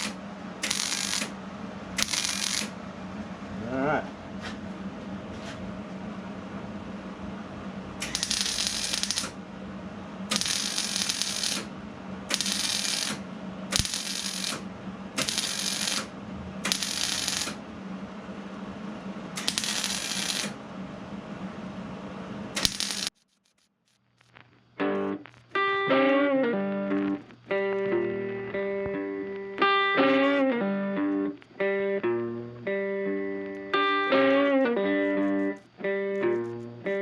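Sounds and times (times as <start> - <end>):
welding arc bursts: 0.0 - 1.4, 2.0 - 2.8, 8.0 - 9.4, 10.3 - 11.7, 12.3 - 17.6, 19.4 - 20.6, 22.6 - 25.6
steady low hum: 0.0 - 23.2, 23.9 - 37.0
electric guitar music: 24.8 - 37.0.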